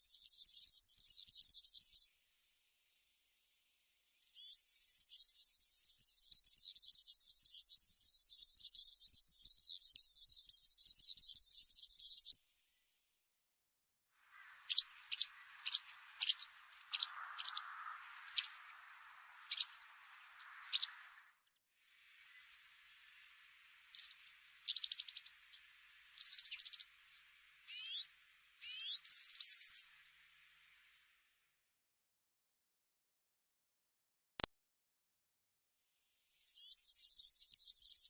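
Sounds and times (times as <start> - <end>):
songbird chips and trills: 0.0 - 2.1, 4.2 - 12.4, 14.3 - 21.3, 22.2 - 31.1, 36.3 - 38.0.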